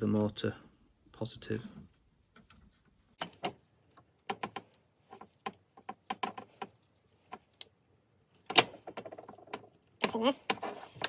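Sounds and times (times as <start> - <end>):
small parts clicking and tapping: 3.2 - 11.0.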